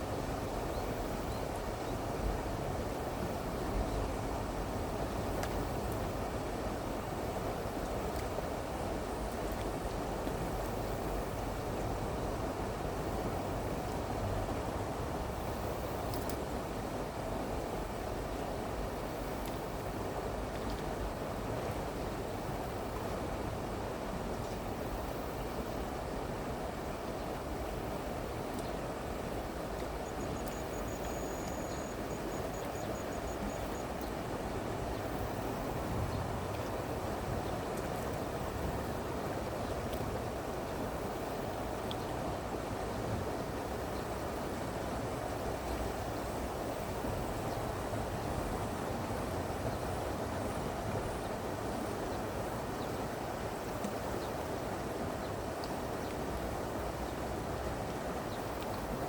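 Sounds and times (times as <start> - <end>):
stream water flowing: 0.0 - 59.0
faint ticks: 16.1 - 16.4, 29.7 - 34.2.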